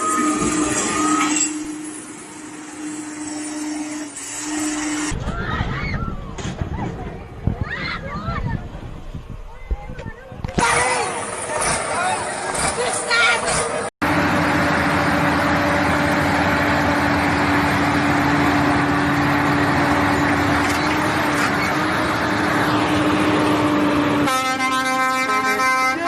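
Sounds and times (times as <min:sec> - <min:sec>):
long horn blast: 0:00.0 - 0:05.2, 0:23.0 - 0:26.0
vehicle noise low hum: 0:00.0 - 0:26.0.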